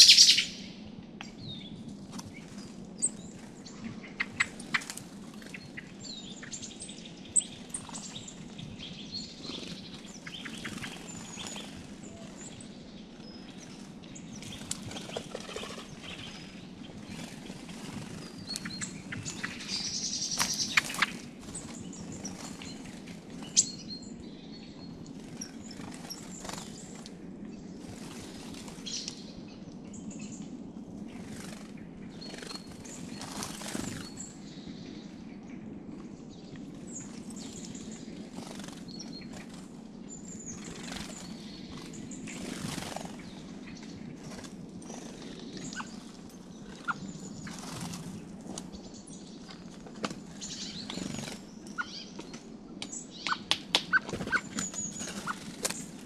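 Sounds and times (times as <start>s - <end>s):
low background hum: 0.0s - 56.0s
songbirds chirping: 0.0s - 56.0s
wing flutters: 7.4s - 23.8s, 31.0s - 34.2s, 37.0s - 52.4s, 53.3s - 56.0s.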